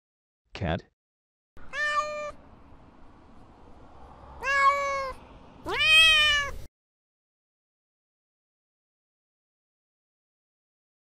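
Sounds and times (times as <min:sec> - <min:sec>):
cat meowing: 0:01.6 - 0:02.4, 0:04.4 - 0:06.7.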